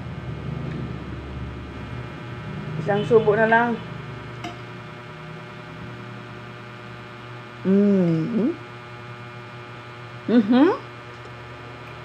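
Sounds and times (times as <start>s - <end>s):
electrical hum: 0.0s - 12.0s
woman humming mm: 7.6s - 8.7s, 10.2s - 10.8s.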